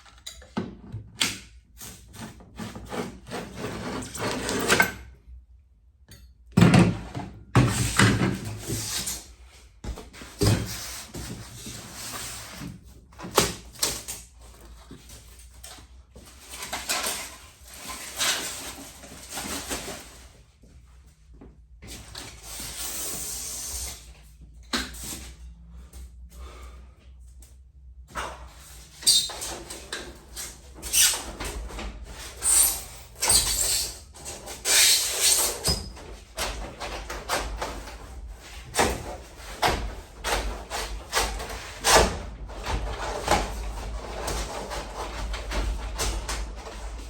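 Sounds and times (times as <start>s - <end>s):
knocks and scrapes on garage door: 28.2s - 47.0s.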